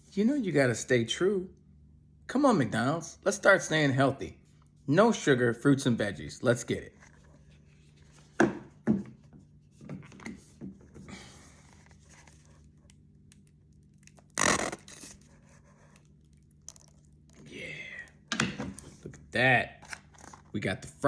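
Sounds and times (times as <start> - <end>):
paper rustling and crinkling: 11.4 - 13.1, 19.8 - 20.6
packaging tearing: 13.3 - 17.4.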